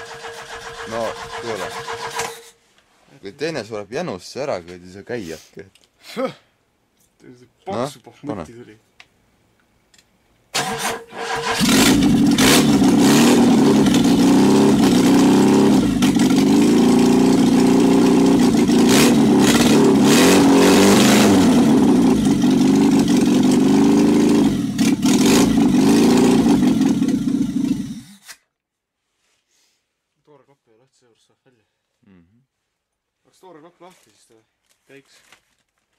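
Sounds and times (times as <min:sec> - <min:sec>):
engine starter cranking: 0:00.0 - 0:02.5, 0:10.5 - 0:13.0
loud unmuffled engine running: 0:11.8 - 0:28.0.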